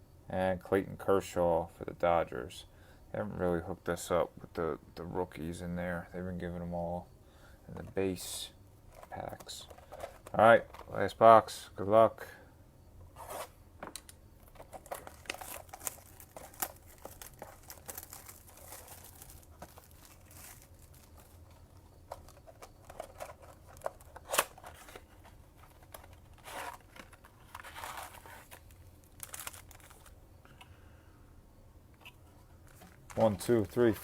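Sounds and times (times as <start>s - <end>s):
plastic wrap and cardboard tearing: 14.7s - 21.6s, 22.2s - 30.1s.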